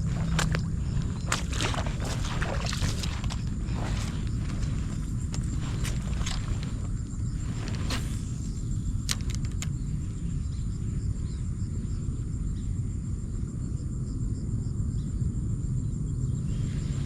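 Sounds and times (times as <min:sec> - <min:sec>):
constant low rumble: 0:00.0 - 0:17.0
insects trilling: 0:00.0 - 0:17.0
sharp clicks: 0:09.0 - 0:09.7.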